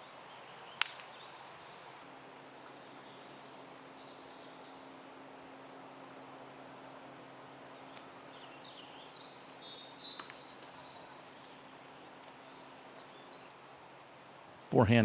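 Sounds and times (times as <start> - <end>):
birds chirping: 0.0 - 5.0, 7.2 - 13.6
faint steady hum: 0.0 - 15.0.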